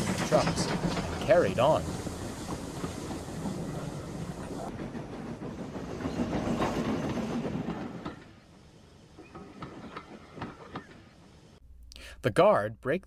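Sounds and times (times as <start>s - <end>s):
train clickety-clack on rails: 0.0s - 11.4s.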